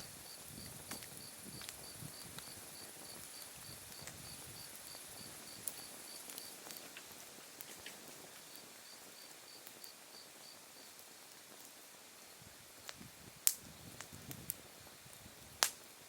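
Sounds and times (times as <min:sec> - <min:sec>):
insect chirping: 0:00.0 - 0:06.6
fire embers crackling: 0:00.0 - 0:16.0.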